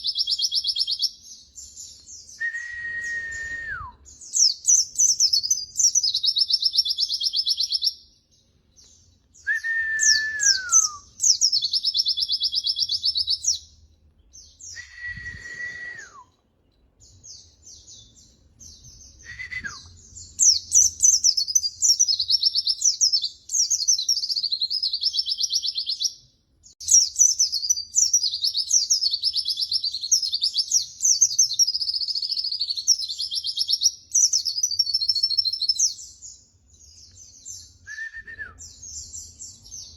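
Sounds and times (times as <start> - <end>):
low whistle sliding downward: 2.4 - 4.0
bird twittering: 9.4 - 13.7.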